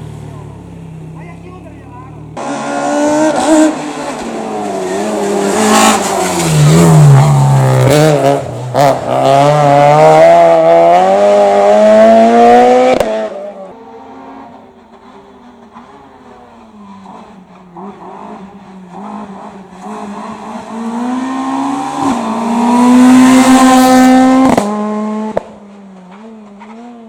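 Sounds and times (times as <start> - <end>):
race car engine revving: 0.0 - 27.0.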